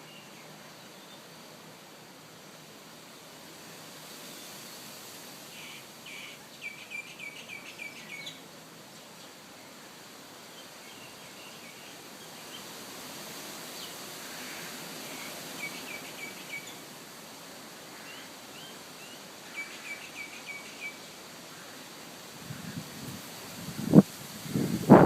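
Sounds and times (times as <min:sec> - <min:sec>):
outdoor ambient hiss: 0:00.0 - 0:25.0
small birds chirping: 0:05.6 - 0:09.8, 0:18.0 - 0:21.8.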